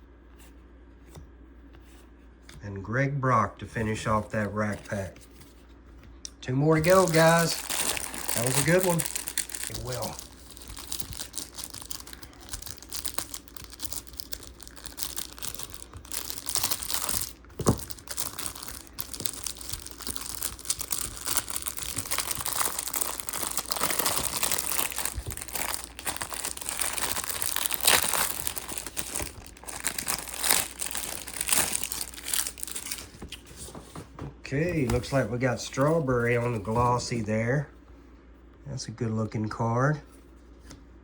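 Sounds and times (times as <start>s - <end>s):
plastic wrapper crinkling: 6.6s - 33.8s
plastic wrapper snap: 6.8s - 33.4s.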